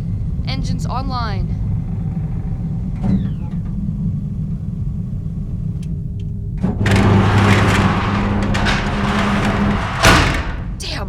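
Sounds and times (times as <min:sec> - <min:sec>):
spaceship engine hum: 0:00.0 - 0:10.8
loud rushing roar: 0:06.8 - 0:10.8.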